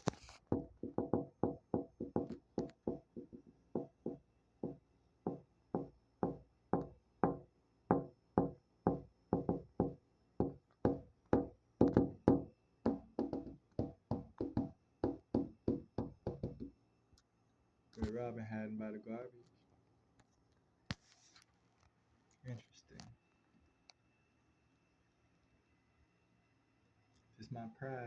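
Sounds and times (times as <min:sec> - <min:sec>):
sharp ringing knocks: 0:00.6 - 0:16.7.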